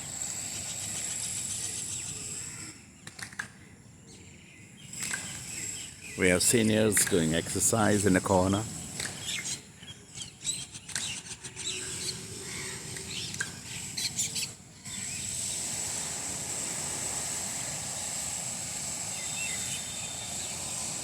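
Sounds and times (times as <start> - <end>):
small birds chirping: 0.0 - 21.0
jarring repair noise with whine: 10.6 - 21.0.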